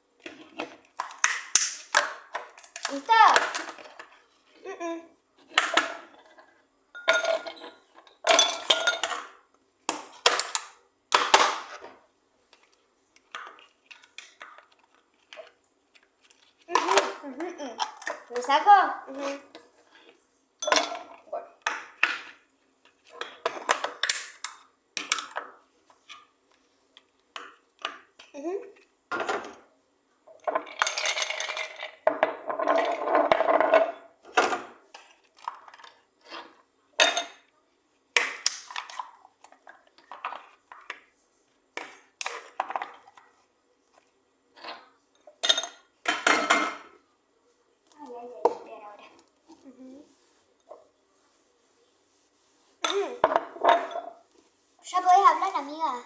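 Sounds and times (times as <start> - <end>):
dishes and utensils clattering: 7.0 - 9.4, 20.6 - 22.4, 30.4 - 34.8, 35.4 - 37.5, 44.6 - 47.0, 52.8 - 54.2.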